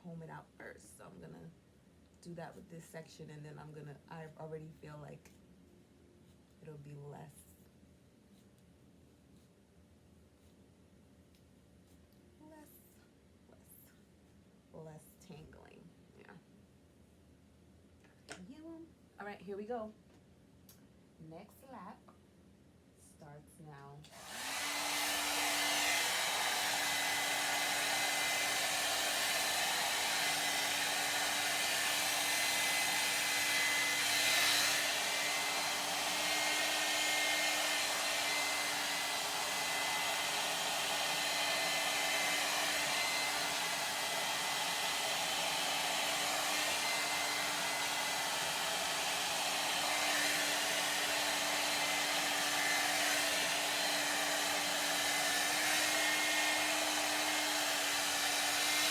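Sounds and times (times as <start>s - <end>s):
hair dryer running: 24.0s - 58.9s.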